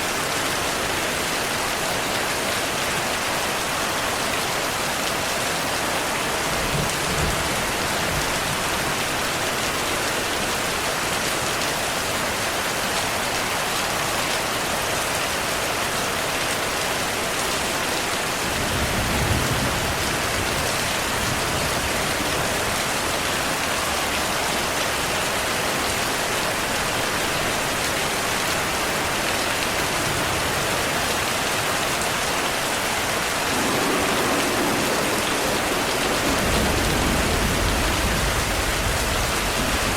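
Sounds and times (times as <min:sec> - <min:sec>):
heavy rain: 0:00.0 - 0:39.9
thunder rumbling: 0:33.3 - 0:39.9.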